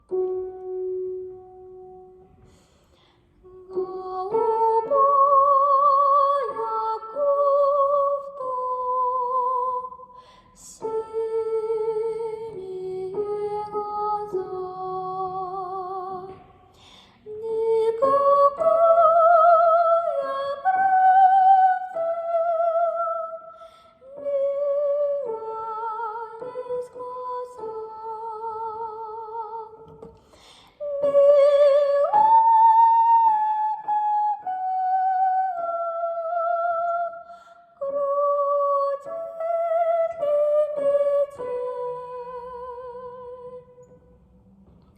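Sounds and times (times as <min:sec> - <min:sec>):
singer breathing: 0:02.3 - 0:03.4, 0:10.1 - 0:10.6, 0:16.6 - 0:17.3, 0:30.1 - 0:30.8
woman singing wordless melody: 0:03.4 - 0:30.1, 0:30.7 - 0:44.1.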